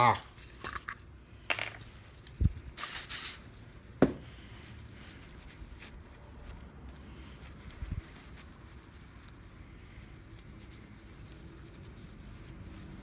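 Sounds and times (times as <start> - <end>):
brief rubbing hiss: 2.8 - 3.5.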